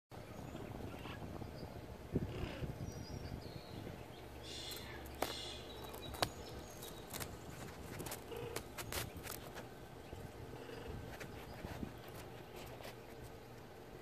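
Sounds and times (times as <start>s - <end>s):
faint high bird chirps: 0.2s - 7.2s.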